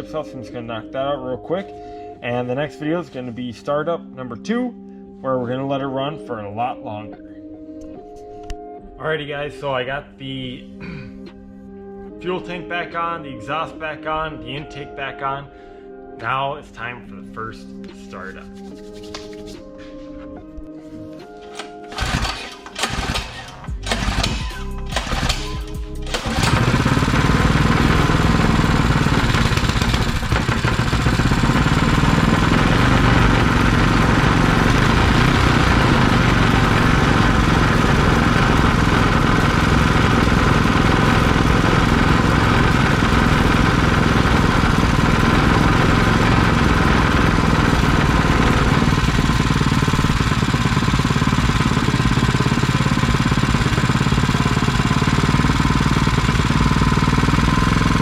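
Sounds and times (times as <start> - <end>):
go-kart engine starting and running: 21.6 - 58.0.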